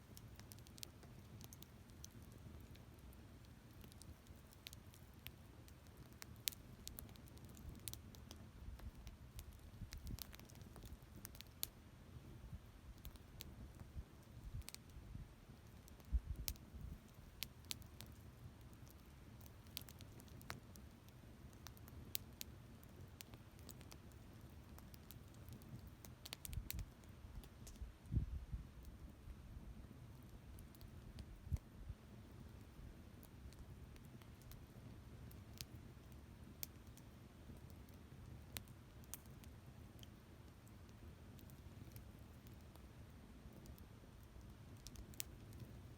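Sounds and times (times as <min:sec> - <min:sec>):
campfire crackling: 0:00.0 - 0:45.9
faint low rumble: 0:07.6 - 0:18.6, 0:24.4 - 0:37.5.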